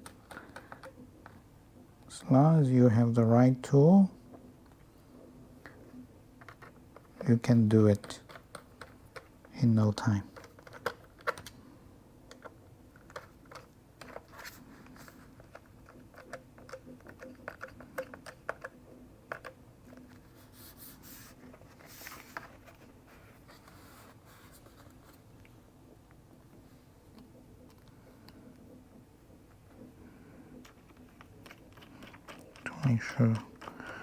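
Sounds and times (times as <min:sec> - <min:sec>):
small clicks and light scraping: 0:00.0 - 0:01.4, 0:06.4 - 0:09.6, 0:10.3 - 0:11.6, 0:12.3 - 0:26.2, 0:27.1 - 0:28.8, 0:30.5 - 0:34.0.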